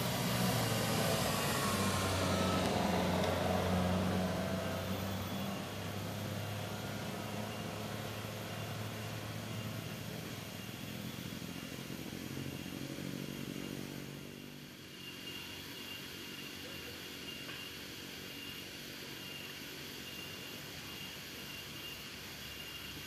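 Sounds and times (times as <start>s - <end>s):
vehicle engine driving away: 0.0s - 15.6s
high insect drone: 0.0s - 23.0s.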